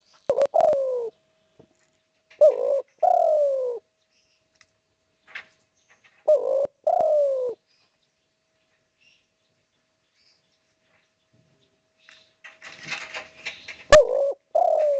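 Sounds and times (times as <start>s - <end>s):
dove cooing: 0.3s - 1.2s, 2.3s - 3.9s, 6.2s - 7.6s, 13.8s - 14.9s.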